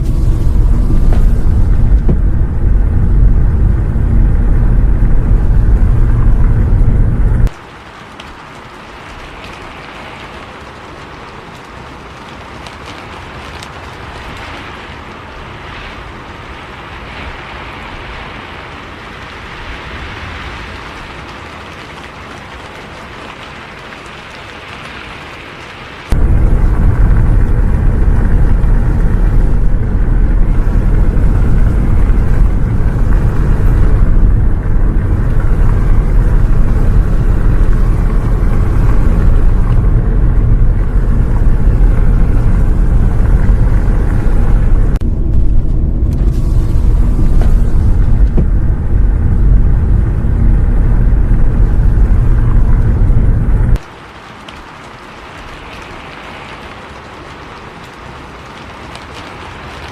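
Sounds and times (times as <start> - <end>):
bus rumbling on the road: 0.0 - 7.6, 26.1 - 53.9.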